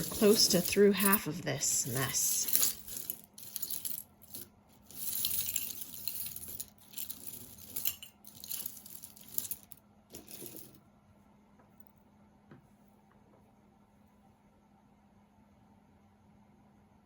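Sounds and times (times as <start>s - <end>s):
jewelry clinking and rustling: 0.0s - 10.8s.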